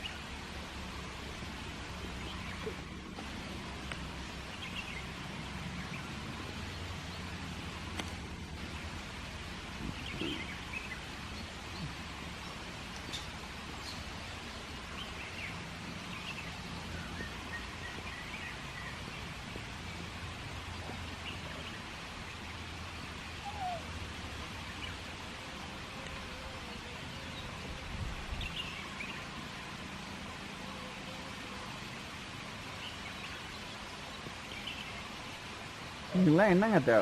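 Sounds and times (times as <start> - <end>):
background hiss and low rumble: 0.0 - 37.0
faint bird chirps: 9.8 - 12.0, 23.3 - 23.9.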